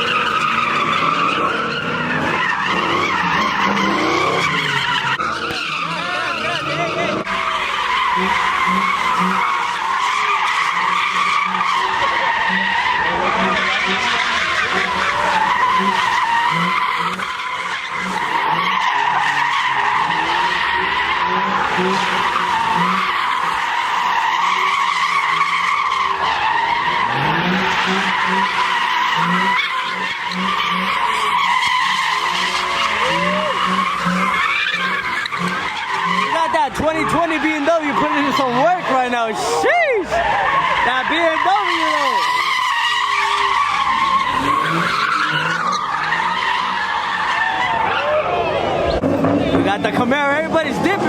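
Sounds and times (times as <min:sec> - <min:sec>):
car engine revving: 0:00.0 - 0:51.0
car tyres squealing: 0:00.0 - 0:51.0.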